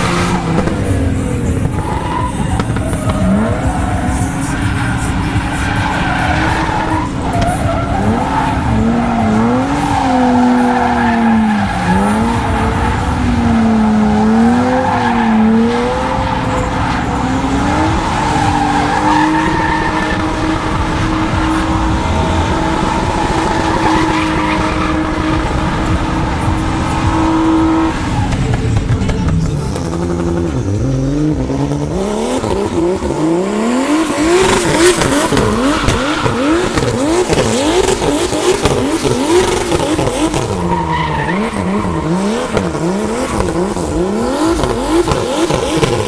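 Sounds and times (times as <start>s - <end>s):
car engine revving: 0.0s - 46.0s
tyres skidding: 0.0s - 46.0s.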